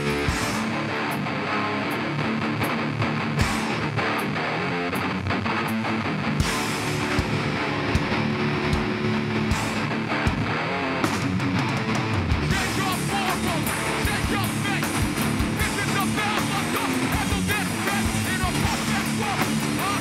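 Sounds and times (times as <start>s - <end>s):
distorted electric guitars: 0.0s - 20.0s
drum beat: 11.6s - 20.0s.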